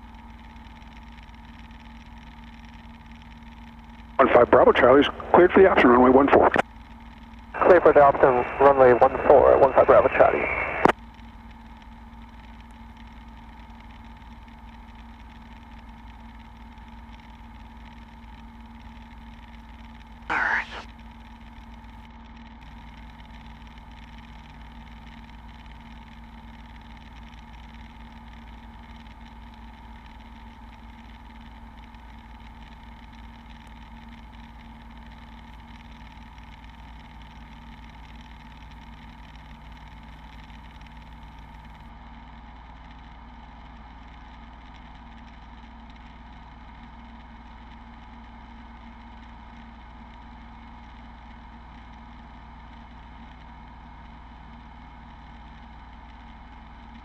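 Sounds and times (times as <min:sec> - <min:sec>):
propeller plane engine drone: 0:00.0 - 0:41.8.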